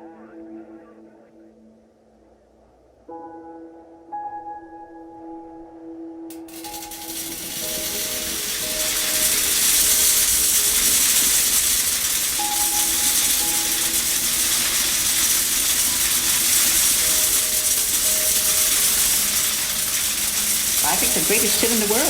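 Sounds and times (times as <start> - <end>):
steady loud hiss: 6.3 - 22.0.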